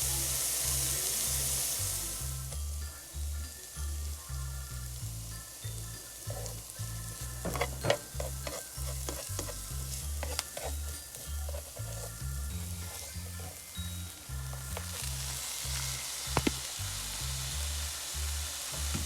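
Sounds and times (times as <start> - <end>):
food sizzling in a frying pan: 0.0 - 19.0
utensil scraping a pan: 6.3 - 16.6.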